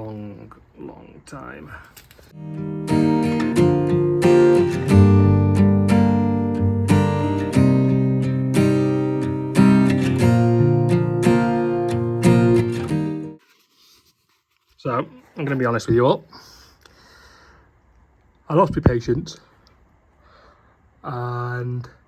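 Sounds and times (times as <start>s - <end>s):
acoustic guitar strumming: 2.4s - 13.4s.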